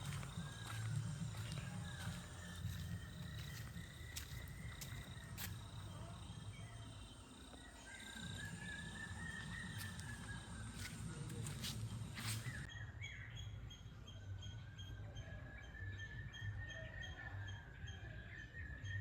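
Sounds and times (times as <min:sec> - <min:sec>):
high pulsing insect chirr: 0:00.0 - 0:12.7.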